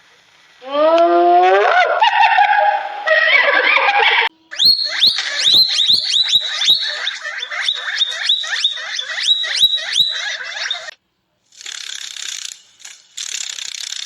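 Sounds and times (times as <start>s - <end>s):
animal call: 0.6s - 11.0s
sharp high chirps: 4.4s - 11.0s.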